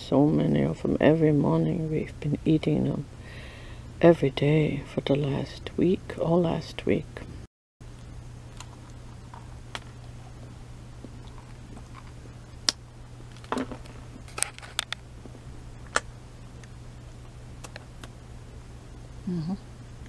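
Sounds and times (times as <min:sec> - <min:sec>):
steady low hum: 0:00.0 - 0:20.0
person chewing bread: 0:08.4 - 0:13.4.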